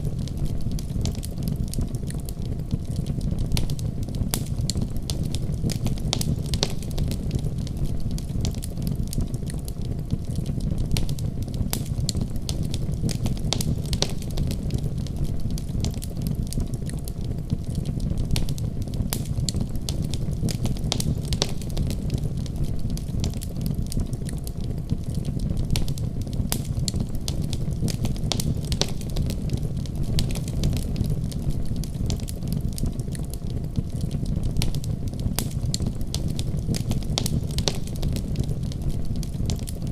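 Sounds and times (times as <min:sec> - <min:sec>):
fire crackling and popping: 0:00.0 - 0:39.9
low fire rumble: 0:00.0 - 0:39.9.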